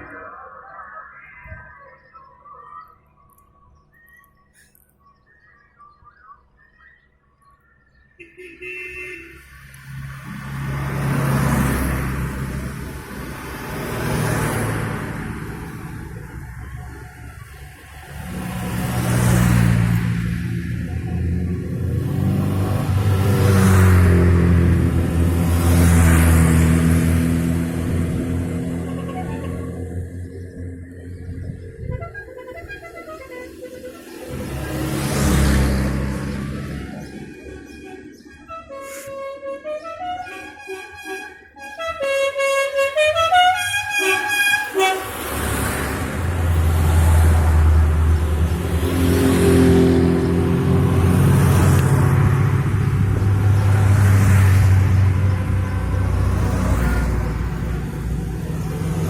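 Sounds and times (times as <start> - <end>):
vintage vehicles driving past: 8.9 - 59.0
horn-like tune: 28.8 - 29.9, 31.9 - 34.6, 37.1 - 45.4
vintage vehicle engine passing: 44.1 - 59.0.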